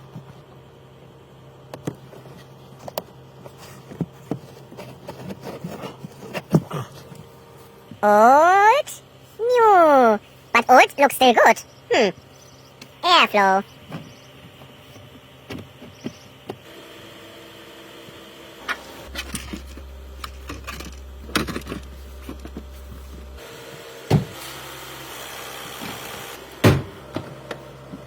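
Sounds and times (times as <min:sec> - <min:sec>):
steady low hum: 0:00.0 - 0:28.0
clicks and knocks of parts handled: 0:19.1 - 0:23.2
loud thumps: 0:24.1 - 0:24.4, 0:26.6 - 0:27.4.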